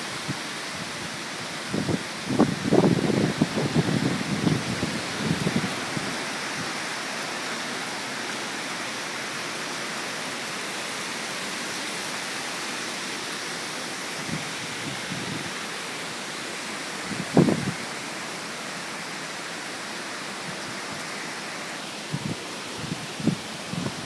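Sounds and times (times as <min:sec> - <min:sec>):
strong wind with rain: 0:00.0 - 0:24.0
low buffets on microphone: 0:01.8 - 0:06.7, 0:22.1 - 0:24.0.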